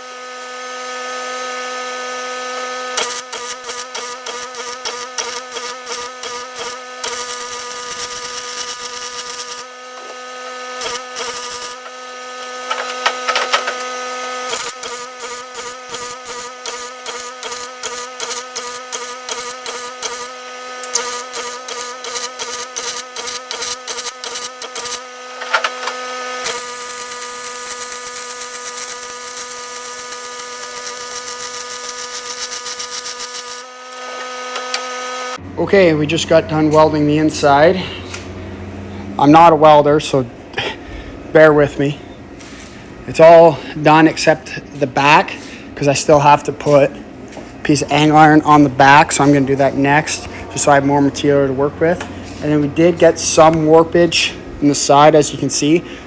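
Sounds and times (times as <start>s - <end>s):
welding arc hissing: 3.0s - 9.8s, 10.7s - 12.6s, 14.4s - 25.6s, 26.3s - 35.4s.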